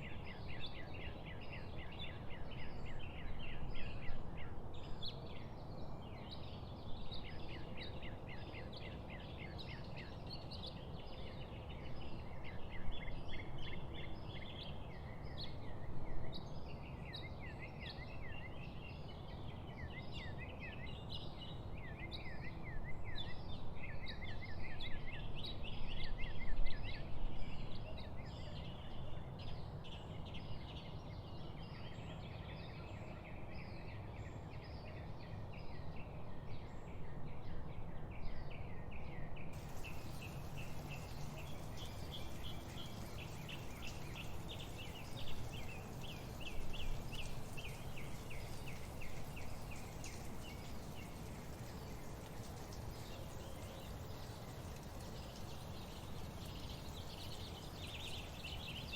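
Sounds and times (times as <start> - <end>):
songbirds chirping and trilling: 0.0 - 58.9
background hiss: 39.6 - 58.9.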